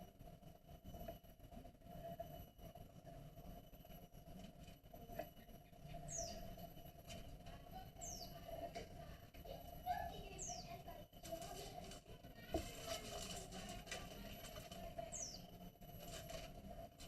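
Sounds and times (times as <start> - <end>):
small bird chirping: 5.1 - 6.9, 7.7 - 11.8, 14.2 - 15.7.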